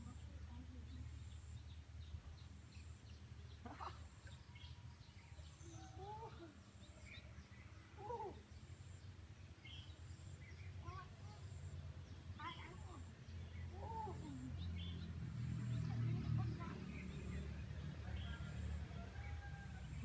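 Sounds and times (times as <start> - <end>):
distant birds chirping: 0.0 - 20.0.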